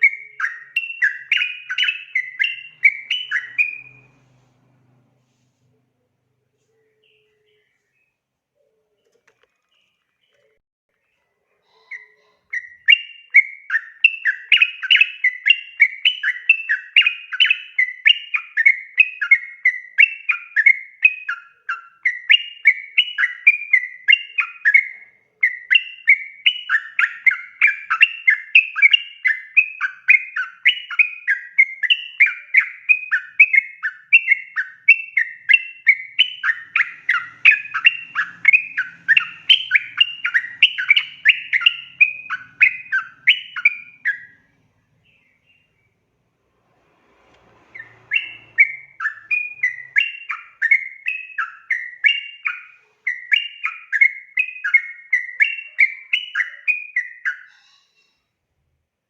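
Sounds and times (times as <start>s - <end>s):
bird singing bubbling notes: 0.0s - 4.2s, 12.5s - 44.4s, 47.7s - 57.5s.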